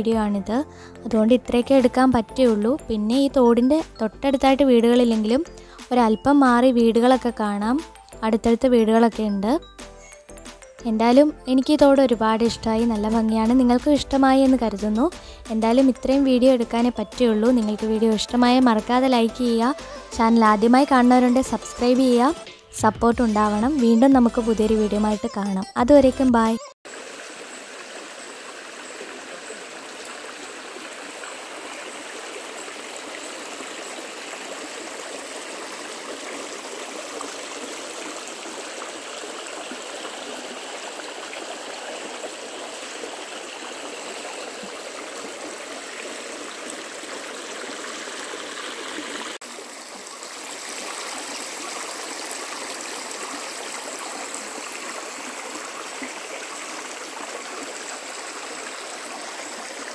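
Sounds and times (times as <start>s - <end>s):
stream babbling over rocks: 26.9s - 59.9s.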